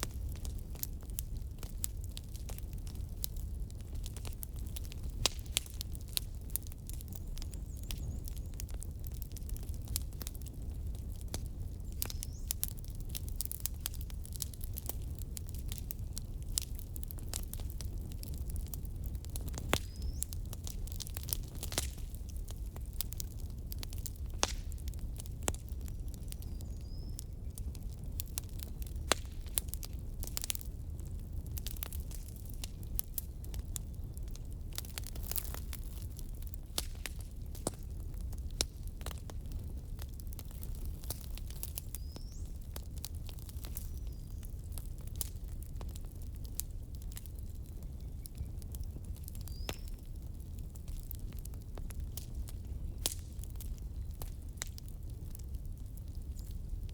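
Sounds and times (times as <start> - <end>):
firewood crackling and popping: 0.0 - 56.9
low rumble of flames: 0.0 - 56.9.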